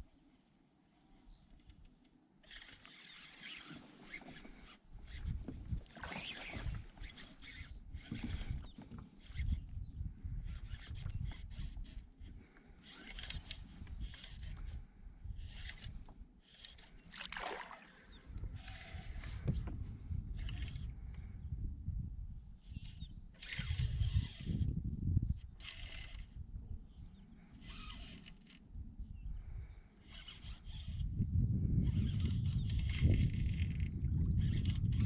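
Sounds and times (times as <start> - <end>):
water splashing against a kayak: 5.3 - 7.4, 17.0 - 18.5.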